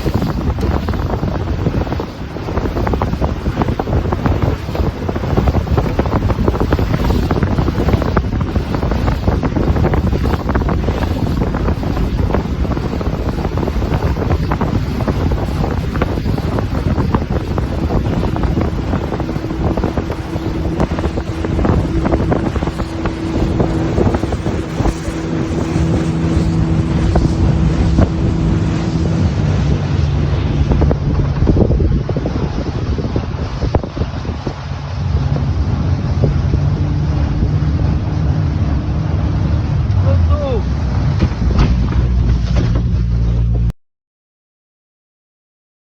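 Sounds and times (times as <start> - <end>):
wind buffeting microphone: 0.0 - 43.7
motorboat engine hum: 0.0 - 43.8.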